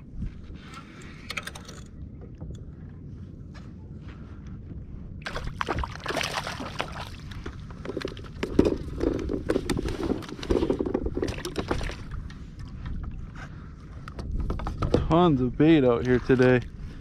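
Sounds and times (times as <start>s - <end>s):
water splashing against a kayak: 5.2s - 13.3s.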